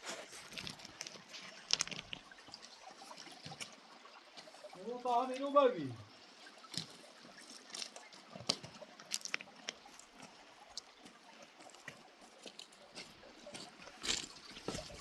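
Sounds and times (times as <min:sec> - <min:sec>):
faint running water: 0:00.0 - 0:15.0.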